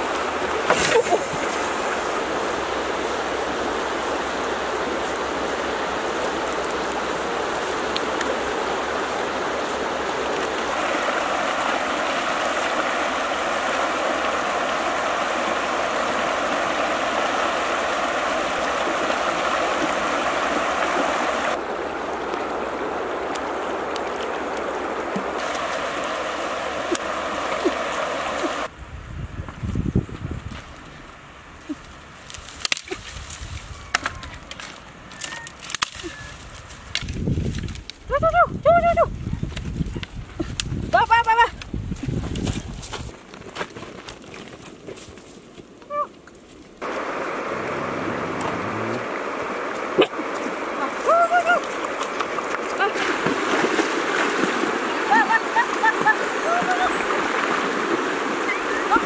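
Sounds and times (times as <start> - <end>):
river rushing over rocks: 0.0 - 28.7, 46.8 - 59.0.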